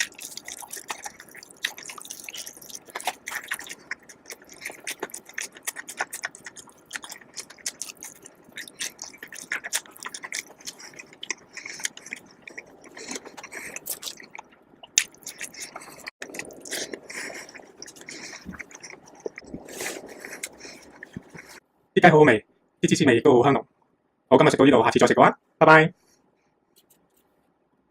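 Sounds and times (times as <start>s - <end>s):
chewing and biting food: 0.0s - 21.6s
mouth clicks: 0.0s - 21.6s.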